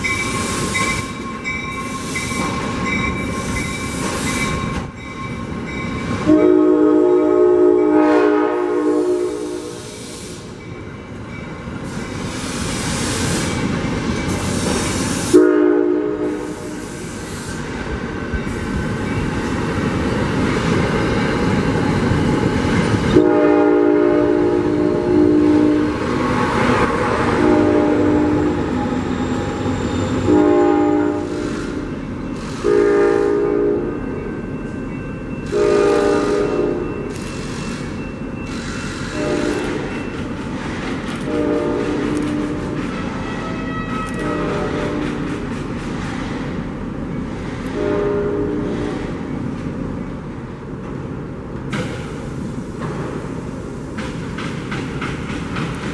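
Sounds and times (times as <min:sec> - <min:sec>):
train rumble and rail noise: 0:00.0 - 0:55.9
train air horn blasts: 0:06.2 - 0:10.5, 0:14.6 - 0:17.1, 0:23.1 - 0:26.1, 0:27.1 - 0:28.7, 0:30.2 - 0:33.9, 0:35.5 - 0:36.9, 0:38.8 - 0:39.9, 0:41.2 - 0:45.3, 0:47.7 - 0:48.9.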